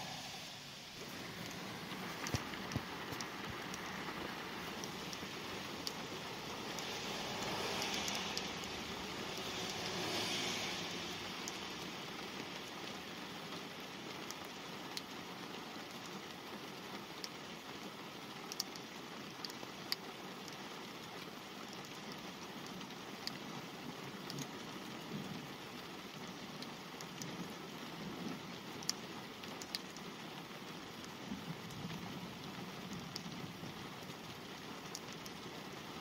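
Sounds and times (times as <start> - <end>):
light rain hiss: 0.0 - 36.0
raindrops tapping on glass: 1.0 - 11.9.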